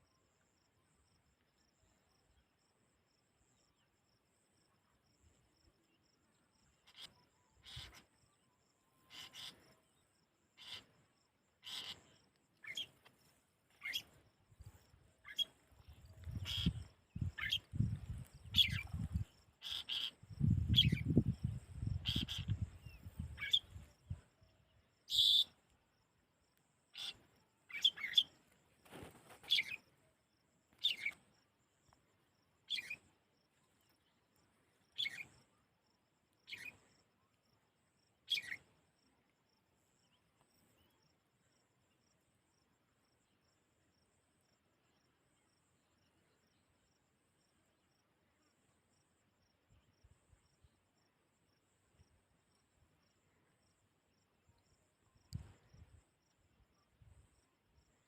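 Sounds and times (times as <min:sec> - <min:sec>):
small bird chirping: 0:06.0 - 0:08.4, 0:09.0 - 0:25.8, 0:26.9 - 0:30.0, 0:30.7 - 0:32.0, 0:32.6 - 0:35.6, 0:36.4 - 0:37.0, 0:38.2 - 0:38.8
wind rumble on microphone: 0:15.9 - 0:19.4, 0:20.2 - 0:24.2.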